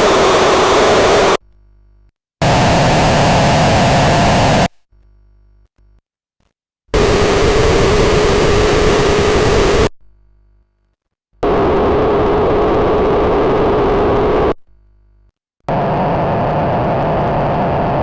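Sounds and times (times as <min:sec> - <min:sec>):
harsh synthesizer noise with buzz: 0:00.0 - 0:01.4.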